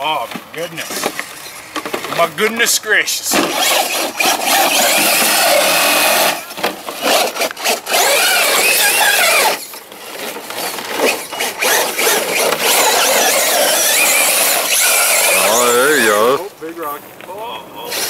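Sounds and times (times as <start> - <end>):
rc truck motor whining: 3.3 - 16.4.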